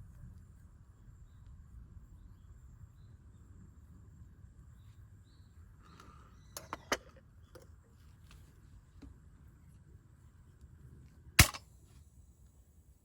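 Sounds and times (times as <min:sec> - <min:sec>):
faint bird chirps: 0:01.0 - 0:08.2
sharp clicks or knocks: 0:11.4 - 0:11.6.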